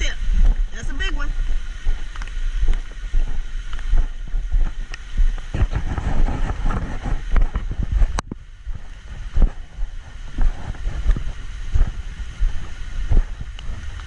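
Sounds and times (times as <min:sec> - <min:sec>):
wind buffeting microphone: 0:00.0 - 0:14.0
camera handling rustles and scrapes: 0:05.4 - 0:07.8.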